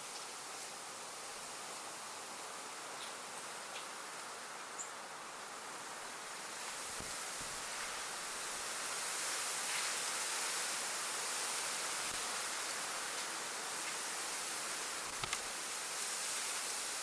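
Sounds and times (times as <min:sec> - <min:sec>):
faint ticks: 0:03.0 - 0:04.3, 0:15.1 - 0:15.5.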